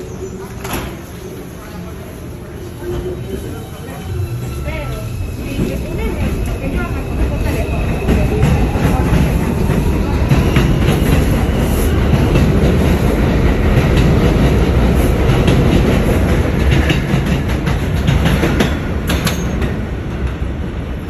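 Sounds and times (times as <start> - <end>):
subway train rumbling: 0.0 - 21.0
wheels clacking over rail joints: 5.6 - 20.4.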